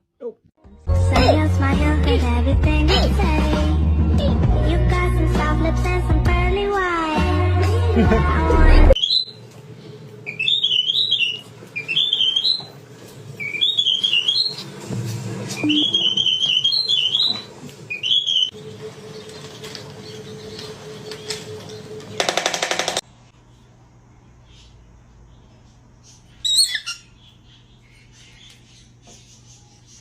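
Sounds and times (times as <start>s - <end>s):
parrot whistling a tune: 9.0s - 9.4s, 10.3s - 12.7s, 13.4s - 14.7s, 15.6s - 18.6s, 26.4s - 27.1s
loud buzzy rattling: 18.3s - 23.0s.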